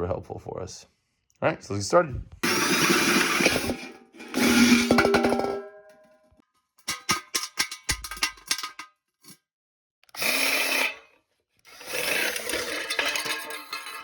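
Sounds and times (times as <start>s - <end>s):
power drill drilling: 2.4s - 4.9s.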